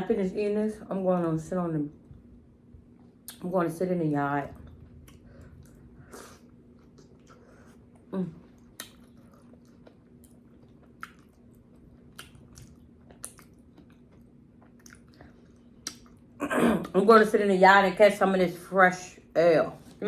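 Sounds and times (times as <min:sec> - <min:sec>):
chewing and lip smacking: 0:04.5 - 0:16.3.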